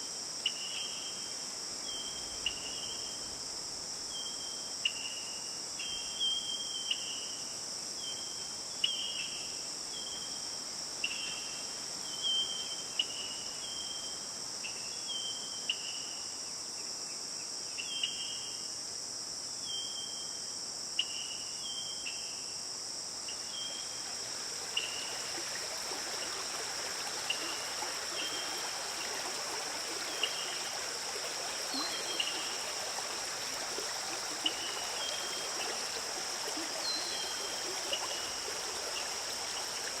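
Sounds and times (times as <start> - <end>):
forest stream running: 0.0 - 17.1, 21.3 - 40.0
high insect drone: 0.0 - 40.0.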